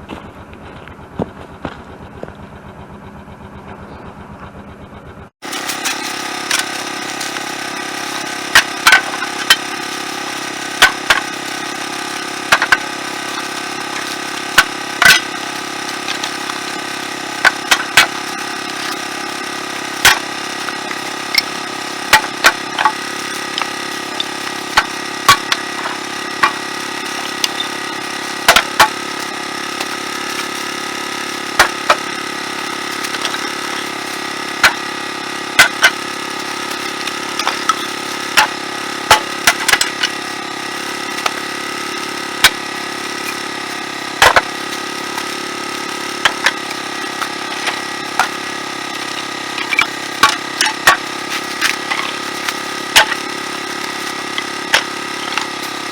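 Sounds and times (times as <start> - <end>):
vehicle engine idling: 0.0 - 55.9
firewood knocking and clattering: 12.5 - 15.4, 29.8 - 32.0.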